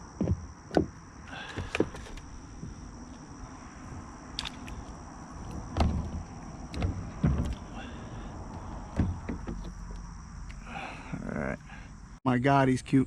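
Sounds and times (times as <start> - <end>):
hollow knocks against kayak hull: 5.5 - 7.6, 8.5 - 10.0.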